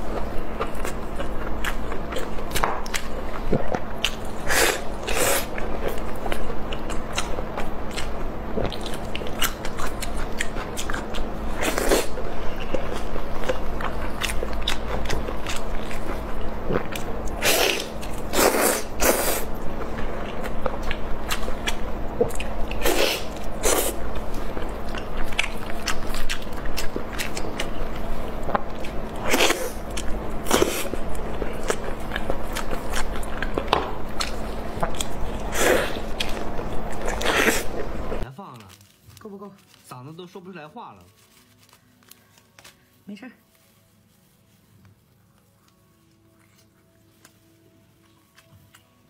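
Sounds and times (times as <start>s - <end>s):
chewing and biting meat: 0.0s - 38.2s.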